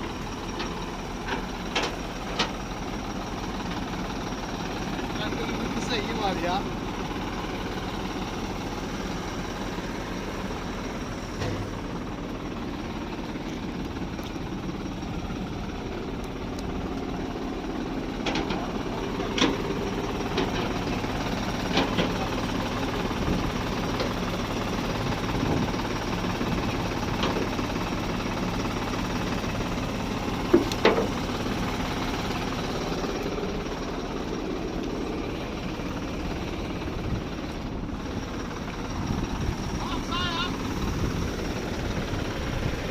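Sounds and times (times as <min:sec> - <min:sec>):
heavy vehicle engine running: 0:00.0 - 0:42.9
metallic clanks and knocks: 0:11.4 - 0:11.9, 0:30.5 - 0:31.2.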